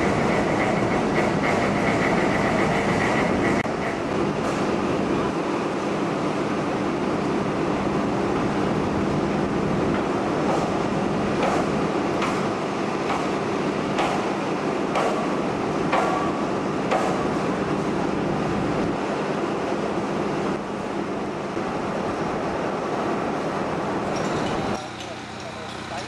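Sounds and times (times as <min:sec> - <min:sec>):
construction machinery engine drone: 0:00.0 - 0:26.0
sharp hammer strikes: 0:11.4 - 0:12.5, 0:14.0 - 0:14.3, 0:14.9 - 0:15.3, 0:15.9 - 0:17.2.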